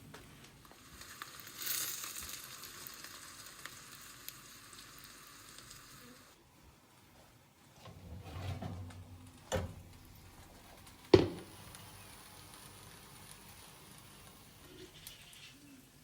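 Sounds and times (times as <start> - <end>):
faint sizzling from a pan: 0.0 - 16.0
cookware knocks: 11.2 - 11.5.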